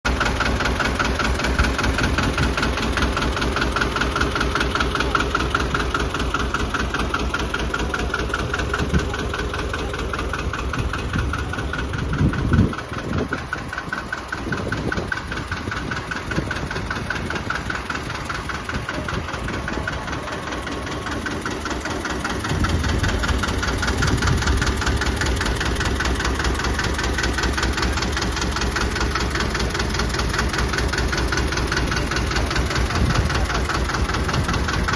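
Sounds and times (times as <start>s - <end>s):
tractor diesel engine idling: 0.0s - 34.9s.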